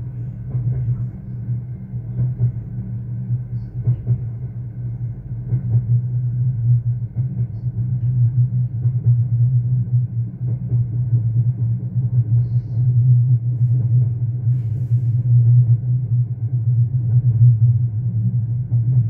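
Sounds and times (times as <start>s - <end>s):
faint track knocks: 0.0s - 12.4s
electric train rumble: 0.0s - 19.0s.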